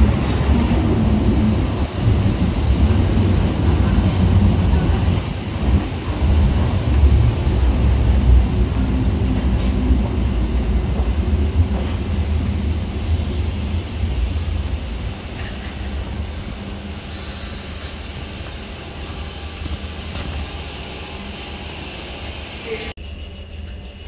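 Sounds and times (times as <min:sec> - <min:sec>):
electric train rumble: 0:00.0 - 0:24.0
high hiss burst: 0:17.0 - 0:19.2.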